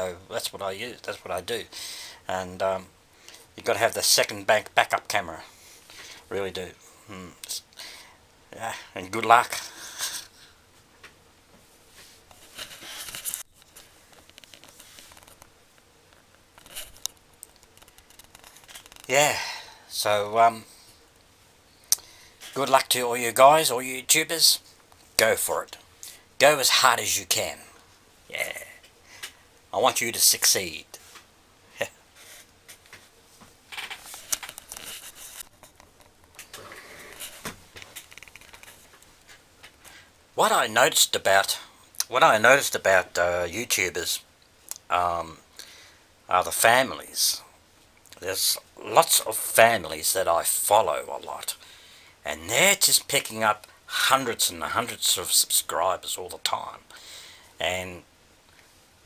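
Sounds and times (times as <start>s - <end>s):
rustling crinkling noise: 9.1s - 19.2s, 28.8s - 41.5s.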